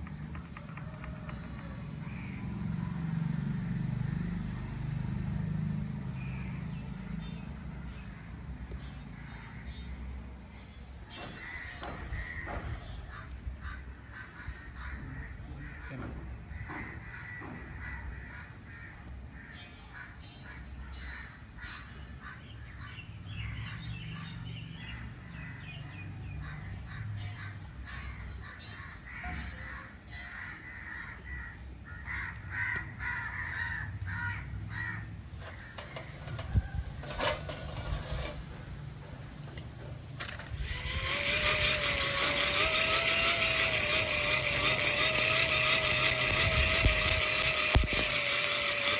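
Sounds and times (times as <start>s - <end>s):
crows cawing: 11.3s - 22.4s, 26.4s - 36.0s.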